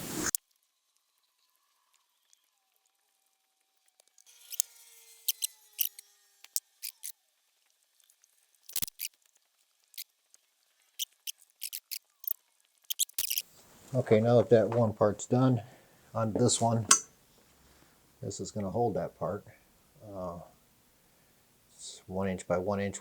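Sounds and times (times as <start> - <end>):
small hard objects clicking: 5.3 - 7.1, 8.7 - 9.2, 11.0 - 13.4
faint thin tones: 11.0 - 14.2.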